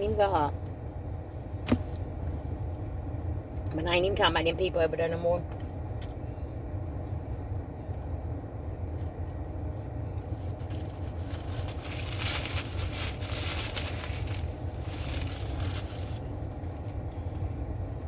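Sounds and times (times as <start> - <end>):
car engine and air conditioner hum: 0.0 - 18.0
rustling and scraping: 10.6 - 16.3.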